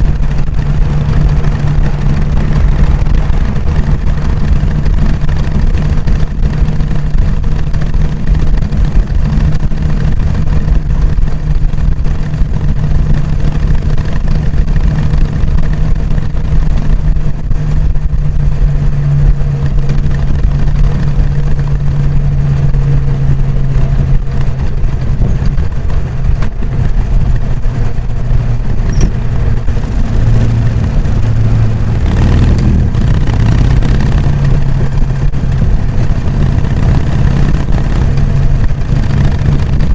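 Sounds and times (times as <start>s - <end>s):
motorcycle engine running: 0.0s - 39.9s
rush of noise: 0.0s - 39.9s.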